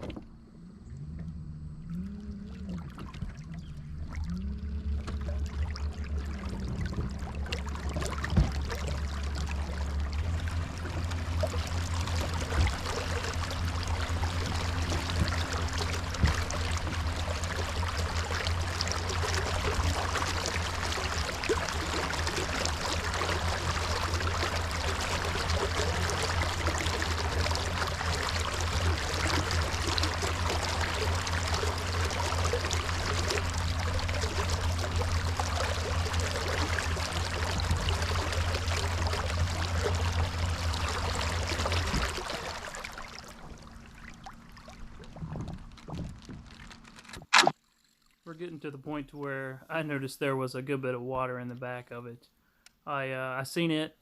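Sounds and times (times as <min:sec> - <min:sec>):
water splashing along kayak hull: 0:00.0 - 0:48.2
steady low hum: 0:00.0 - 0:54.0.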